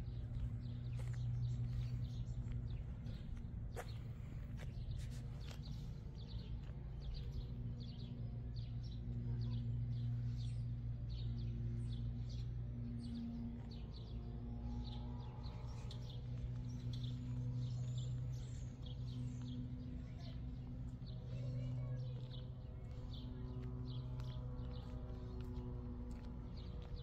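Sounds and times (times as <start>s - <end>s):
small birds chirping: 0.0s - 27.0s
steady low hum: 0.0s - 27.0s.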